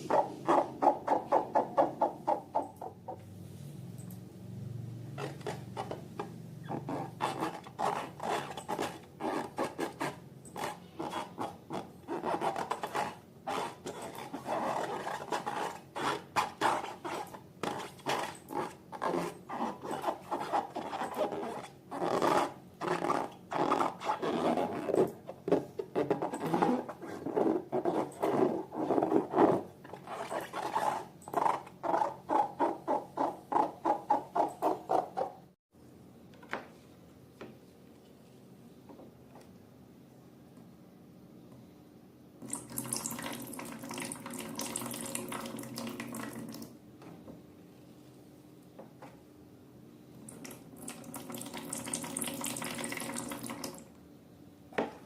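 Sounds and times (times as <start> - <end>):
faint steady hum: 35.2 - 55.0
water running into a sink: 42.5 - 46.7, 50.4 - 53.8.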